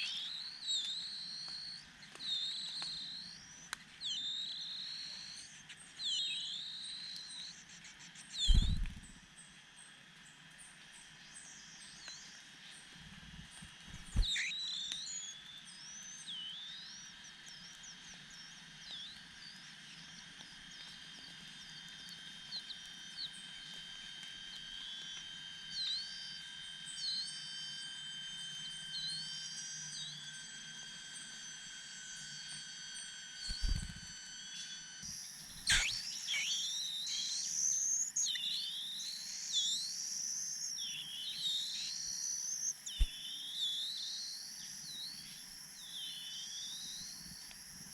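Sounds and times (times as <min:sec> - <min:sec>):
insect drone: 0:00.0 - 0:09.4, 0:11.2 - 0:47.9
birds chirping: 0:08.3 - 0:09.2, 0:13.5 - 0:15.4, 0:35.0 - 0:47.9.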